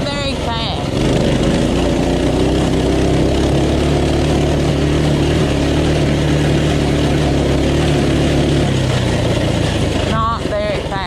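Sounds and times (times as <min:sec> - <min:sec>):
pit bike engine at full throttle: 0:00.0 - 0:11.0.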